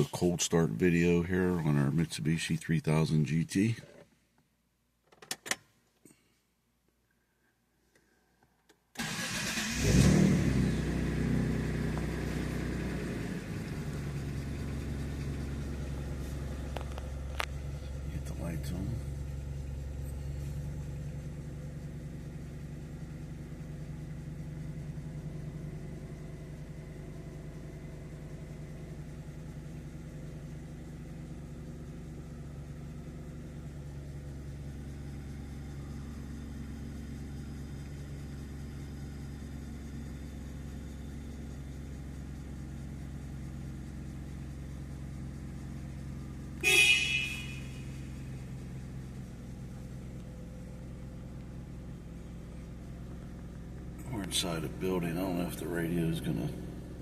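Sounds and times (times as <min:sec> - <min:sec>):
car engine idling: 0:00.0 - 0:03.8, 0:09.0 - 0:57.0
car horn: 0:46.6 - 0:48.4.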